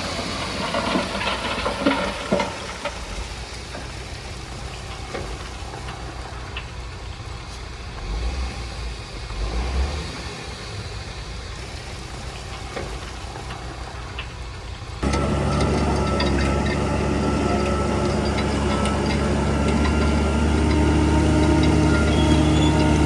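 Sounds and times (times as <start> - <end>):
heavy diesel engine running: 14.8 - 23.0.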